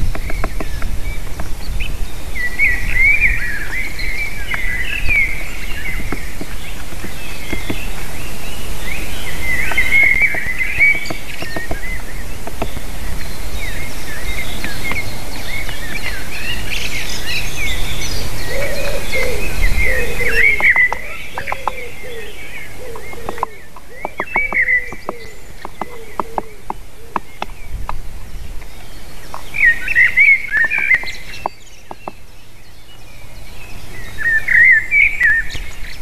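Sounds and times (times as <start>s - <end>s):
lower bird call notes: 0.0s - 36.0s
small birds chirping: 0.0s - 36.0s
wind rumble on microphone: 0.0s - 36.0s
sharp clicks: 9.6s - 12.9s, 22.9s - 28.0s.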